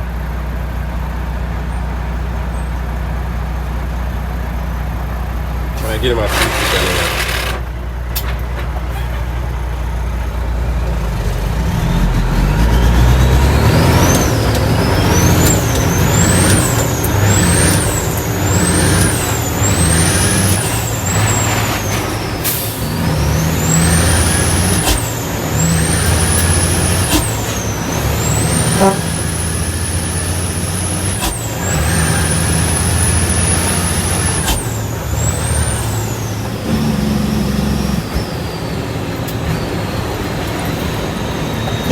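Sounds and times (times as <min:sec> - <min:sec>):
diesel truck engine pulling: 0:00.0 - 0:41.9
turbo whistle: 0:28.4 - 0:34.8.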